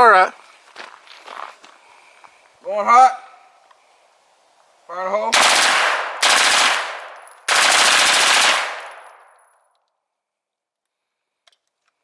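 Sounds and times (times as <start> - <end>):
automatic gunfire bursts: 5.4 - 9.3.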